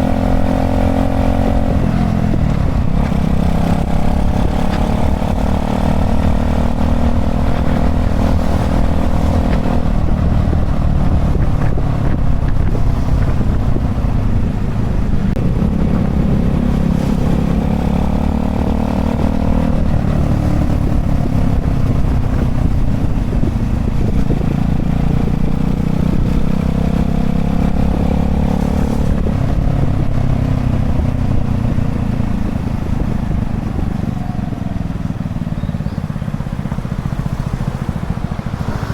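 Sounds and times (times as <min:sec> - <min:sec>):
minibike engine accelerating: 0:00.0 - 0:38.9.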